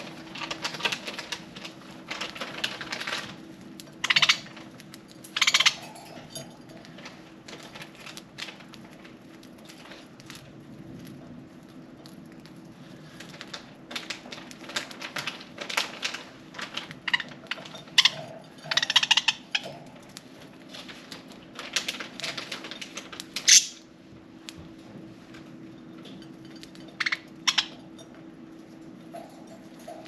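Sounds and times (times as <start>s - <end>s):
birds cracking seeds: 0.0s - 23.9s.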